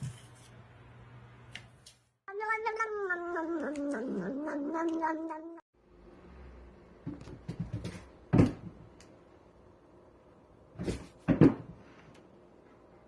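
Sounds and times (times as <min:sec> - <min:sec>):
cat meowing: 0:02.3 - 0:05.6.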